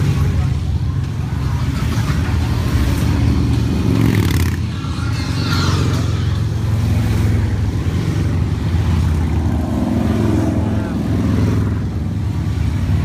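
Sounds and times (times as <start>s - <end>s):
motorcycles riding past: 0.0s - 13.0s.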